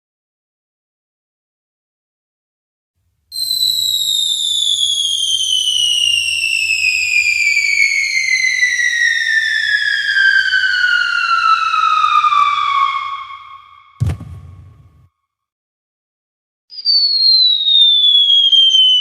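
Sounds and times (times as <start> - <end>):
falling bomb whistle: 3.3 - 15.1, 16.7 - 19.0.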